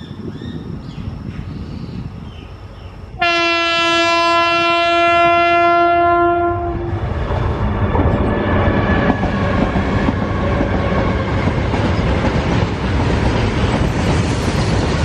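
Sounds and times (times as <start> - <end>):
locomotive horn blast: 3.2 - 7.0.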